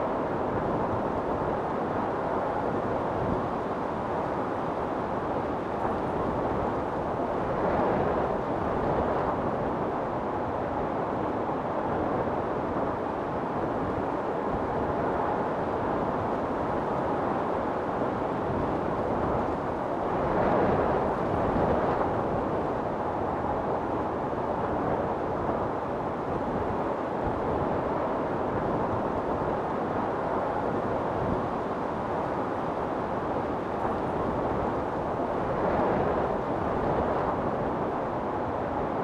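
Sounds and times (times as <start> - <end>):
storm wind blowing: 18.0 - 39.0.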